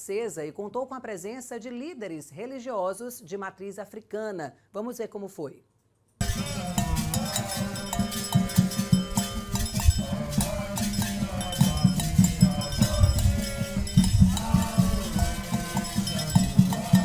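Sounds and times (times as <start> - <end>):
clanging bell: 6.2 - 17.0
hand drums: 6.2 - 17.0
ritual singing: 6.2 - 17.0.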